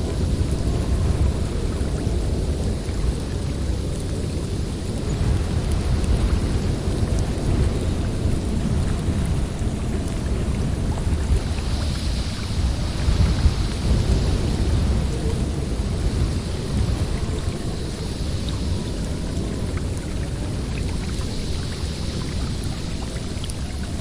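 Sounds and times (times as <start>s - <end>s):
snowstorm wind rumbling: 0.0s - 24.0s.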